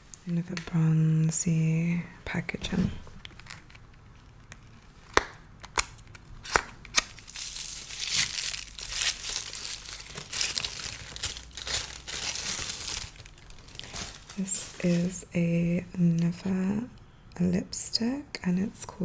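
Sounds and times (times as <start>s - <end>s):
packaging crinkling: 3.0s - 15.3s.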